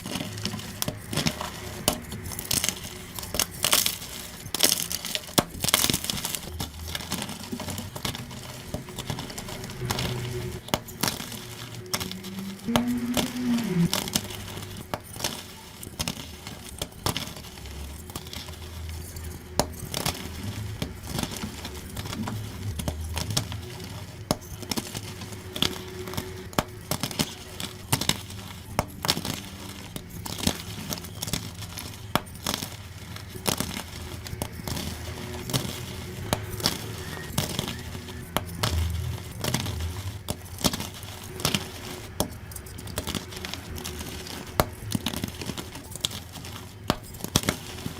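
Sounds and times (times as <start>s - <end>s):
chalk being crushed: 0.0s - 47.9s.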